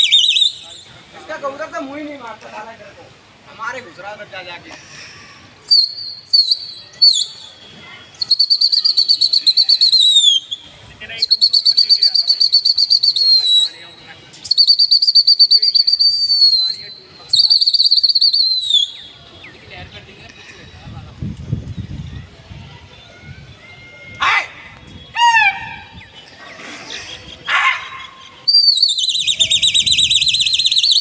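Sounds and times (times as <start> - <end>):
high trilling whistle blasts: 5.7 - 19.1, 28.5 - 31.0.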